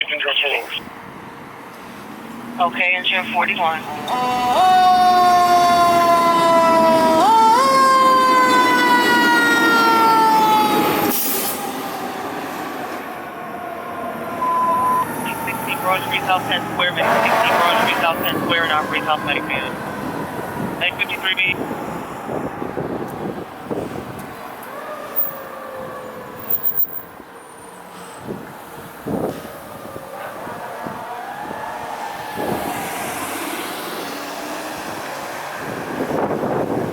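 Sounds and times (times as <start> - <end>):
truck engine and road noise: 0.0 - 36.9
fire engine siren wailing: 2.6 - 36.9
mechanical siren falling wail: 4.4 - 11.1
truck engine: 14.3 - 25.4.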